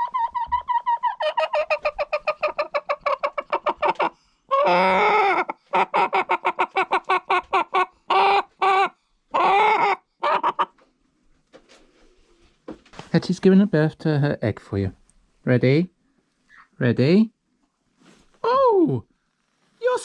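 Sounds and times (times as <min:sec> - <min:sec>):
hen cackling: 0:00.0 - 0:10.8.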